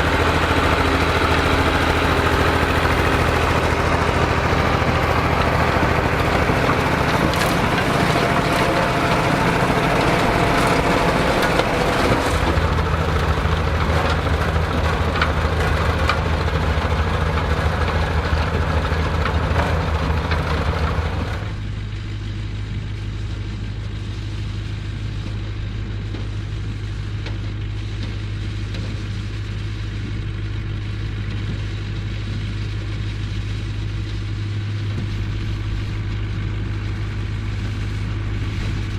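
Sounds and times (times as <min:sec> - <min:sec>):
harvesting machinery clatter: 0:00.0 - 0:21.7
tractor engine running: 0:00.0 - 0:38.9.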